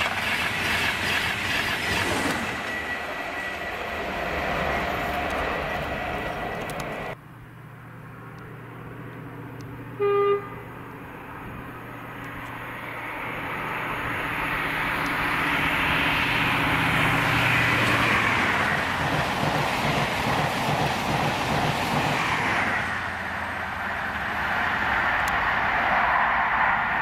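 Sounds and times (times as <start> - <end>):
passing train engine and rush: 0.0 - 27.0
train horn toot: 10.0 - 10.6.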